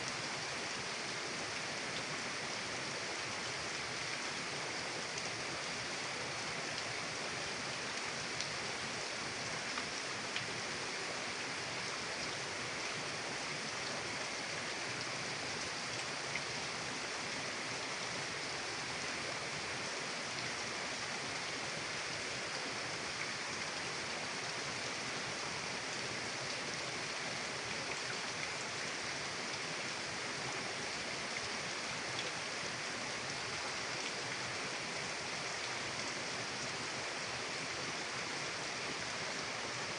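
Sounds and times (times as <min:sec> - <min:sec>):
river water rushing: 0:00.0 - 0:39.9
faint ticks: 0:07.9 - 0:08.6, 0:32.1 - 0:32.4.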